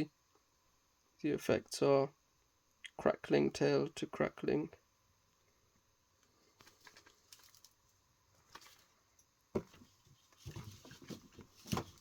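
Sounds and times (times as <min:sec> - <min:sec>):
cardboard handling clicks and rustles: 0:06.5 - 0:07.8, 0:08.4 - 0:12.0.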